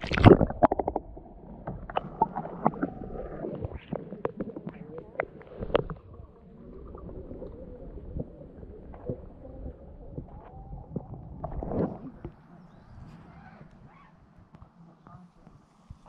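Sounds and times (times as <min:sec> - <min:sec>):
water sloshing and splashing: 0:00.0 - 0:12.5.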